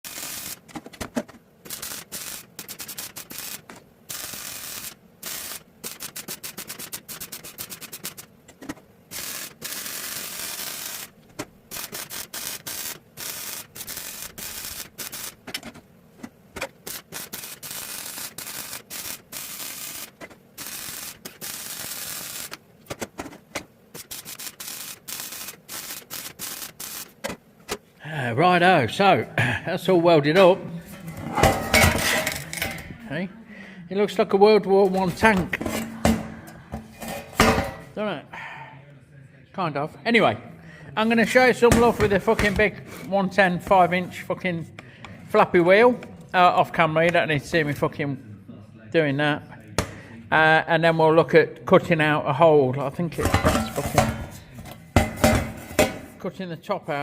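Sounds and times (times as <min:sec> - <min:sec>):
welding arc crackling and hissing: 0:00.0 - 0:27.8, 0:34.7 - 0:38.0, 0:41.0 - 0:44.2, 0:53.2 - 0:56.2.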